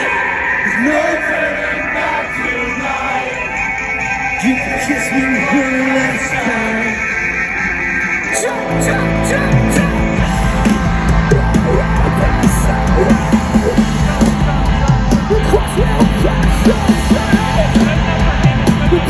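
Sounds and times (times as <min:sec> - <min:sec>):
distorted guitars: 0:00.0 - 0:19.0
fast pounding drums: 0:09.2 - 0:19.0.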